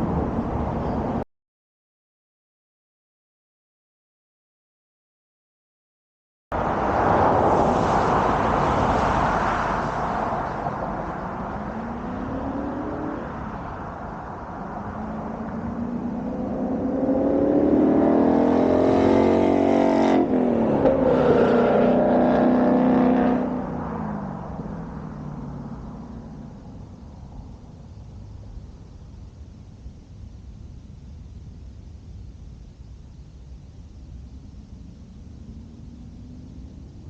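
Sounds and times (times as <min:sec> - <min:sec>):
car engine accelerating: 0:06.6 - 0:27.5.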